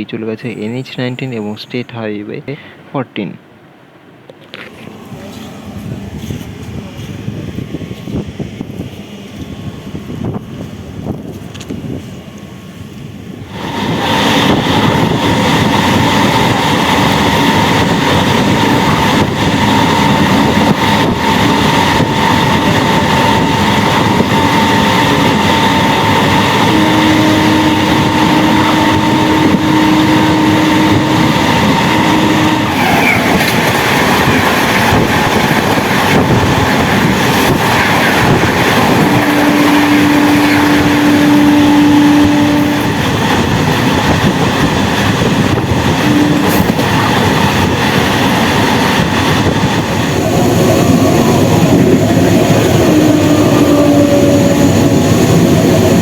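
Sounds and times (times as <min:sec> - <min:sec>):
train wheels on rails: 0:04.2 - 0:56.0
drawn-out pitched tone: 0:38.0 - 0:43.5.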